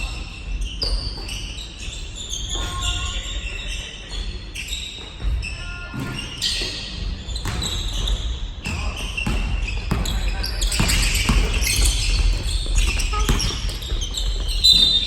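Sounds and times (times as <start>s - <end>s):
sneaker squeaks on floor: 0.0s - 15.0s
basketball bouncing on court: 5.2s - 15.0s.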